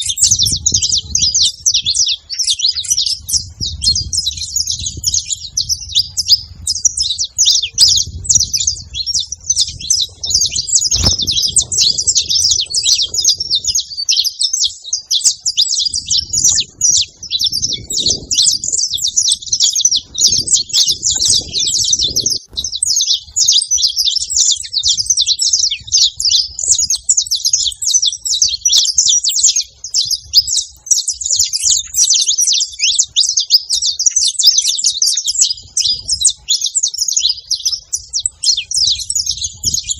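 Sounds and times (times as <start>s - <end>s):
finch singing high chirps: 0.0s - 39.9s.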